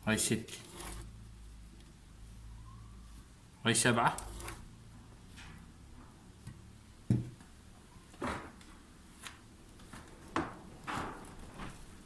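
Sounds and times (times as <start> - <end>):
knocks and handling noises: 5.3 - 12.0.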